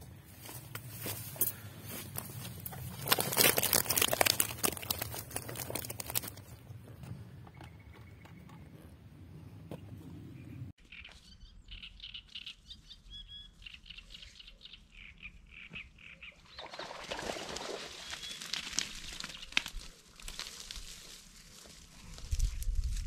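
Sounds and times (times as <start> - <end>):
small birds chirping: 6.5 - 16.8.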